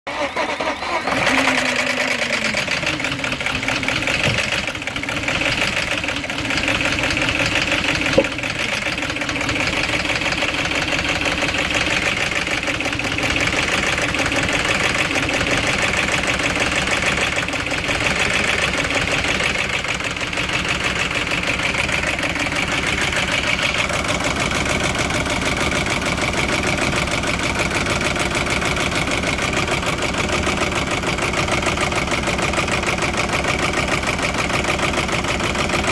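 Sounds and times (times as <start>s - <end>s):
engine idling with rattle: 0.1s - 35.9s.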